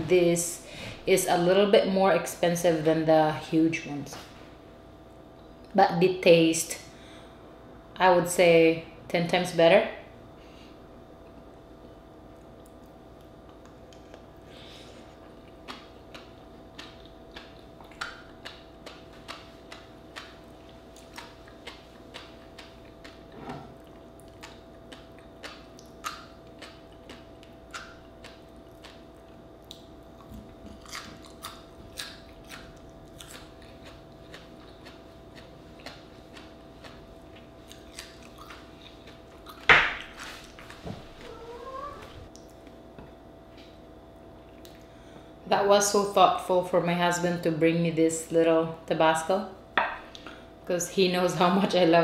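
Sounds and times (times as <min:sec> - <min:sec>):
crunchy chewing: 0:12.3 - 0:42.8.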